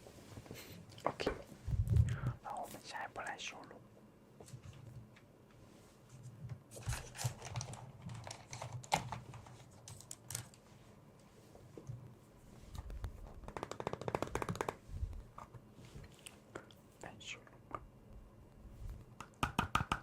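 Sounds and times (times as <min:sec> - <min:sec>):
tapping on small hard objects: 0:13.4 - 0:14.8, 0:19.2 - 0:20.0.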